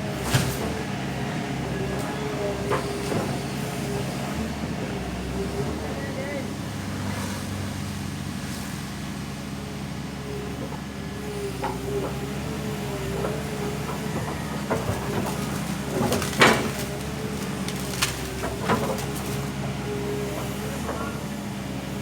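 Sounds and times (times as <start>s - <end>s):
backhoe engine running: 0.0s - 22.0s
wood cracking and knocking: 14.1s - 19.6s.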